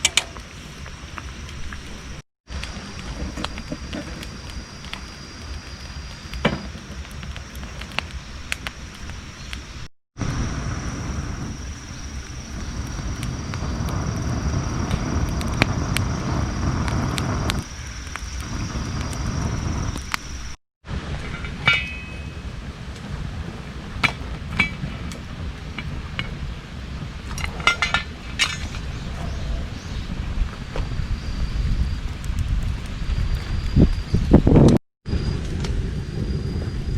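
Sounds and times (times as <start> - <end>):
camp cookware clinking: 0.0 - 0.5, 21.2 - 22.4, 24.0 - 24.9, 27.2 - 29.0
wind rumbling on microphone: 0.0 - 36.9
high whine: 9.5 - 23.0, 33.1 - 36.9.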